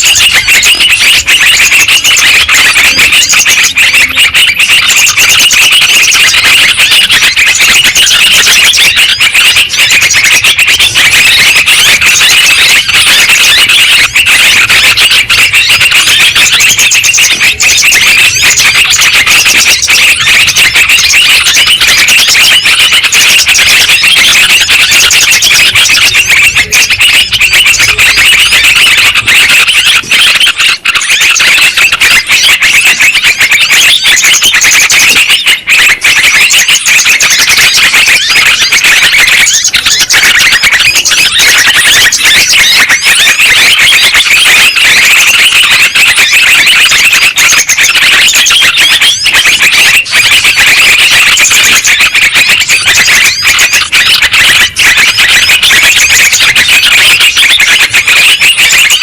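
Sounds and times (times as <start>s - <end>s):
birds chattering shrilly: 0.0s - 59.0s.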